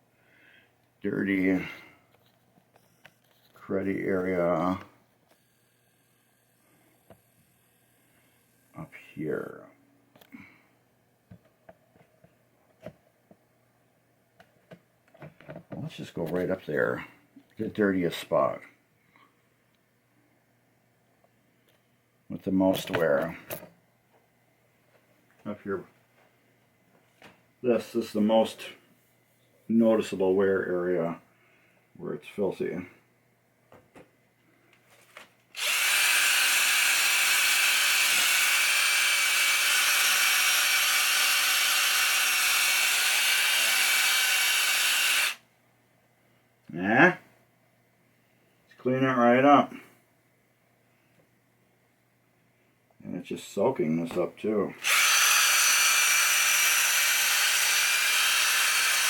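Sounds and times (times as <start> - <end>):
power drill motor whining: 4.6 - 8.9, 35.6 - 45.4, 54.8 - 59.0.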